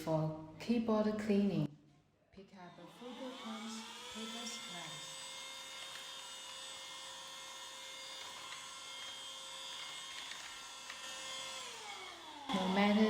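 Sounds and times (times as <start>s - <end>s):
handheld vacuum cleaner whine: 2.8s - 13.0s.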